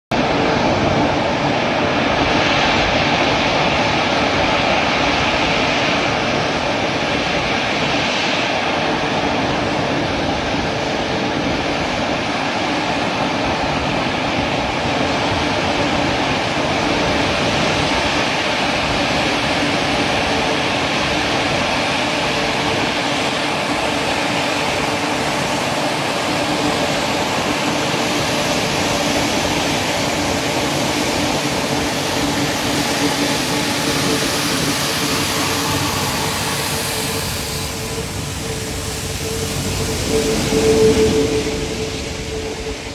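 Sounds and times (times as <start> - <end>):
jet aircraft engines running: 0.1 - 42.9.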